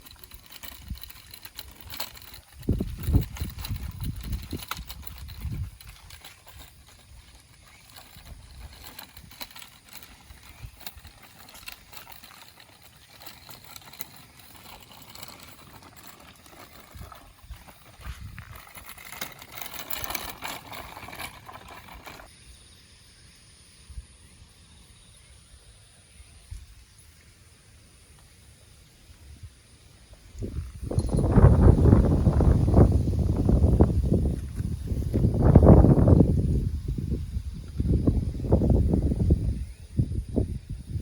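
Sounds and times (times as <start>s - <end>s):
wind gusting on microphone: 0.0s - 12.4s, 30.2s - 41.0s
faint rustling: 0.0s - 22.3s.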